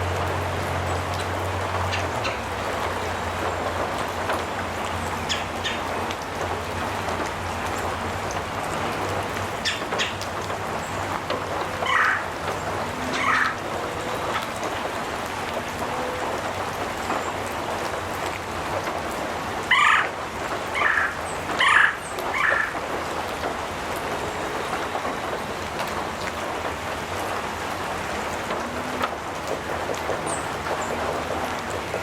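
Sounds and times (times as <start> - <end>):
rain on a metal roof: 0.0 - 32.0
animal calling loudly: 11.8 - 14.4, 19.7 - 20.1, 20.8 - 22.8.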